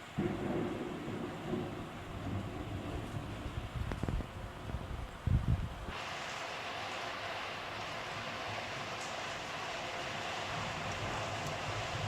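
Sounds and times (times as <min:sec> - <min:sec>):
thunder rumbling: 0:00.0 - 0:06.1, 0:07.7 - 0:12.0
steady hiss: 0:05.2 - 0:12.0.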